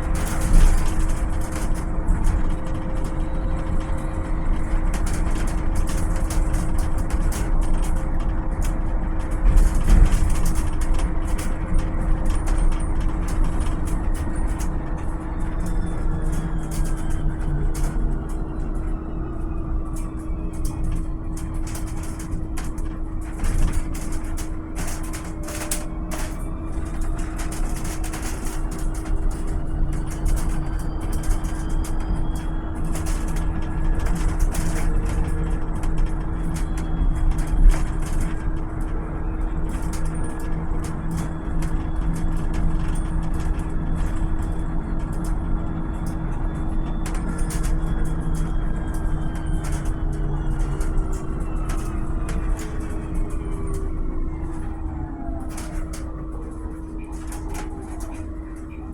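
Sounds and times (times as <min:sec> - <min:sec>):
electric bus whine and rumble: 0:00.0 - 0:58.9
light rattles and ticks: 0:00.0 - 0:58.9.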